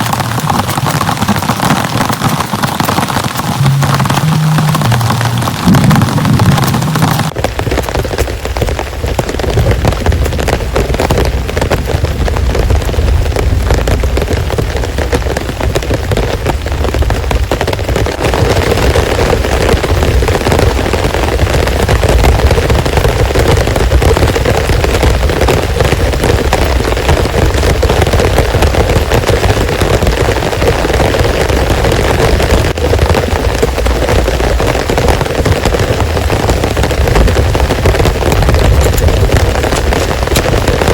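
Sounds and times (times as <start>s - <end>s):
heavy rain pouring: 0.0s - 40.9s
deep rumble: 3.5s - 7.7s.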